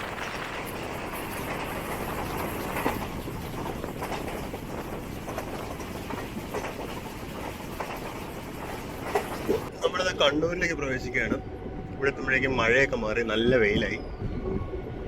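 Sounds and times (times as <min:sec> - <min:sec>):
wheels clacking over rail joints: 0:00.0 - 0:09.7
train running noise: 0:00.0 - 0:15.0.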